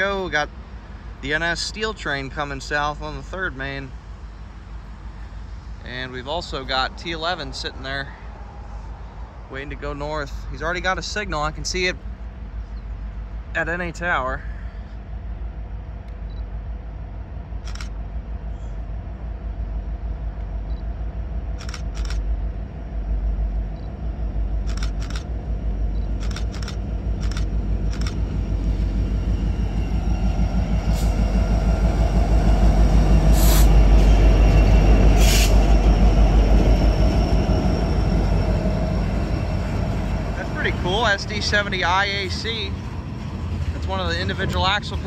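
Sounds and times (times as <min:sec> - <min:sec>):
diesel locomotives passing: 0:00.0 - 0:45.0
sharp clicks: 0:24.7 - 0:25.3, 0:26.1 - 0:28.2.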